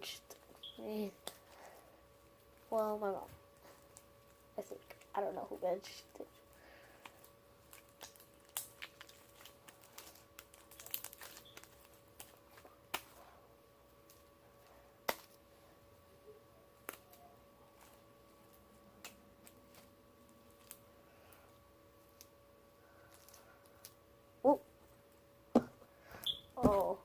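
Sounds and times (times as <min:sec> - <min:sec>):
low steady hum: 0:00.0 - 0:27.0
faint crinkling: 0:00.2 - 0:16.0.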